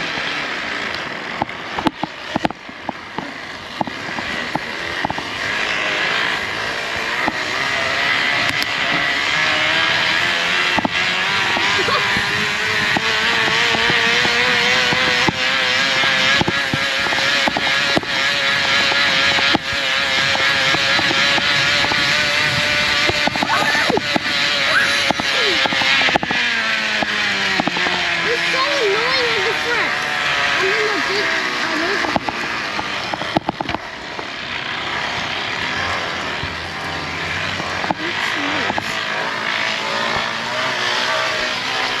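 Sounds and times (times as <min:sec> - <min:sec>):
car engine running: 0:00.0 - 0:42.0
rushing wind: 0:00.0 - 0:42.0
scattered clicks: 0:00.9 - 0:05.3, 0:08.4 - 0:09.0, 0:10.7 - 0:30.0, 0:30.6 - 0:34.3.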